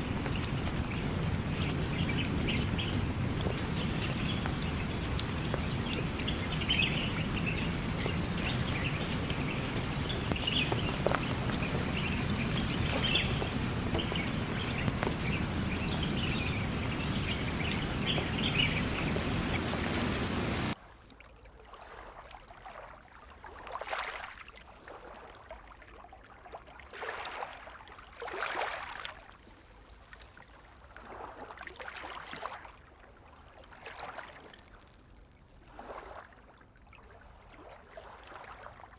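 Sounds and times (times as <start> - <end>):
birds chirping: 0.0 - 20.8
steady rain hiss: 0.0 - 20.8
trickling water: 0.0 - 38.9.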